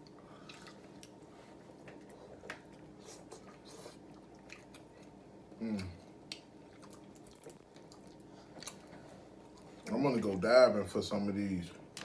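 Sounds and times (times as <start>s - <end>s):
wet chewing and smacking: 0.0s - 9.9s
person humming: 5.6s - 6.0s.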